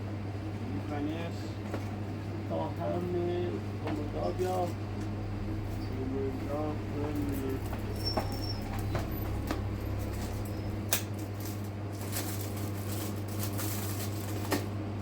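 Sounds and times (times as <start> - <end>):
low hum: 4.0 - 11.6.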